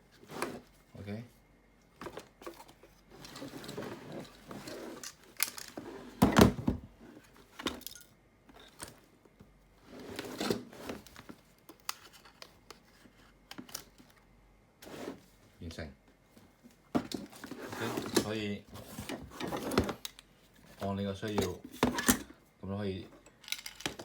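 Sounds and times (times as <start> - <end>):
plastic scraping and rustling: 17.0 - 22.1.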